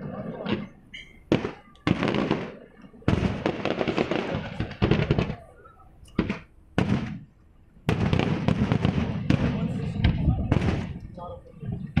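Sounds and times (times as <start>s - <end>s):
firework shells bursting: 0.0s - 11.2s.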